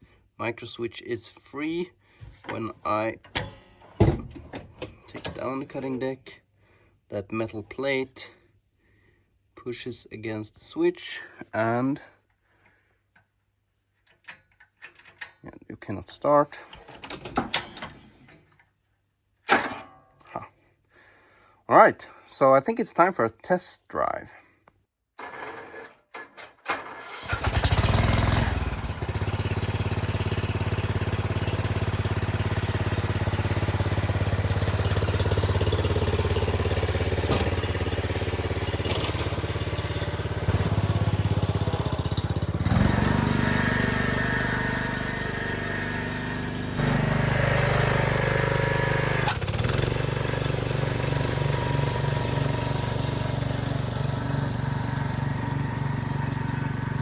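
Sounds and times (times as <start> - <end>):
engine cranking: 2.3 - 5.9, 25.2 - 45.3, 49.1 - 50.8
mower engine running: 2.3 - 6.0, 25.2 - 25.9, 26.7 - 57.0.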